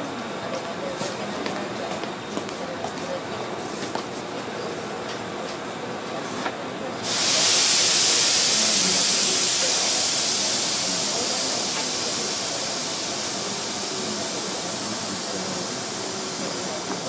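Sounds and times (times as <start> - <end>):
train interior rushing hiss: 7.0 - 17.0.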